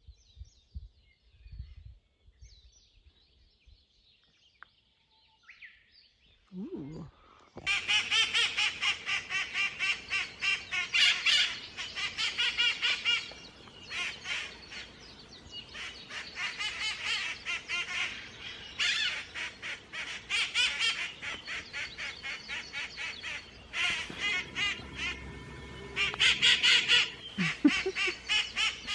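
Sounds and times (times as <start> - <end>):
parrots squawking: 7.6 - 15.0, 15.8 - 28.9.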